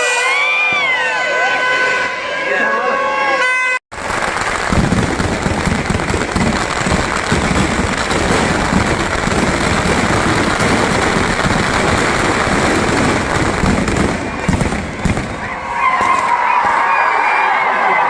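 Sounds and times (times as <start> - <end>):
fireworks and firecrackers bangs: 3.9 - 17.1.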